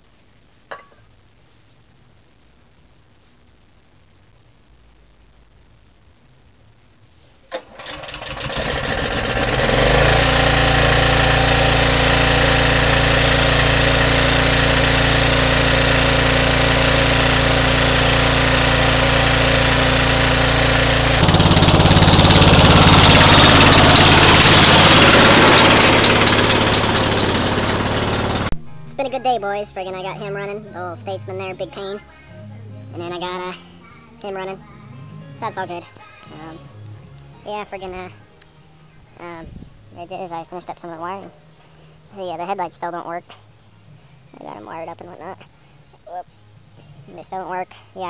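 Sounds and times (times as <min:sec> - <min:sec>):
tractor engine starting and running: 0:07.5 - 0:33.2.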